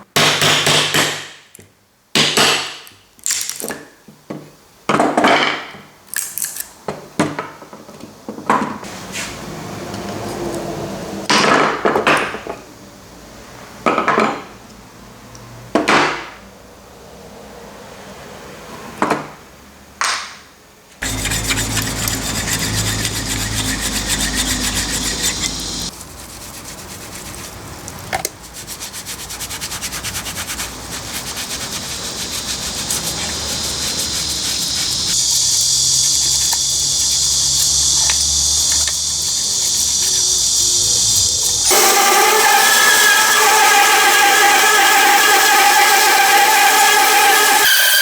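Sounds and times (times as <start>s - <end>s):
rapid abrasive rubbing: 21.0s - 48.0s.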